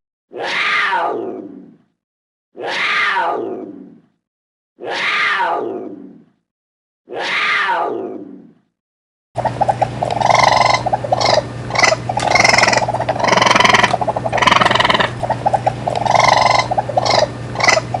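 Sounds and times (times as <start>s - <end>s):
low hum: 9.4s - 18.0s
raccoon chittering: 9.4s - 18.0s.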